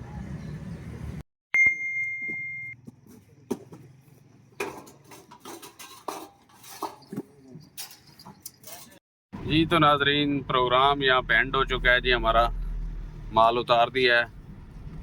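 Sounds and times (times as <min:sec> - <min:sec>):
high-pitched electronic beep: 0:01.6 - 0:02.8.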